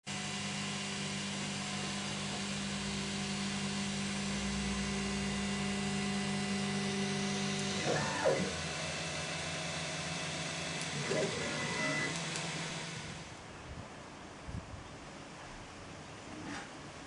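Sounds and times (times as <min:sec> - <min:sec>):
motors and fans hissing: 0:00.1 - 0:13.6.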